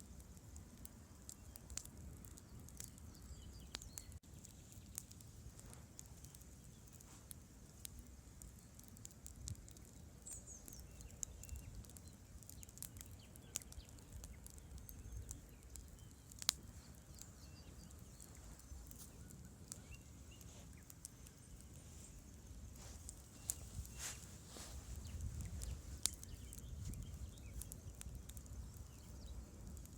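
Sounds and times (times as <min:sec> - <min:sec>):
campfire crackling and popping: 0:00.0 - 0:29.9
faint bird chirp: 0:00.1 - 0:07.1, 0:07.7 - 0:29.9.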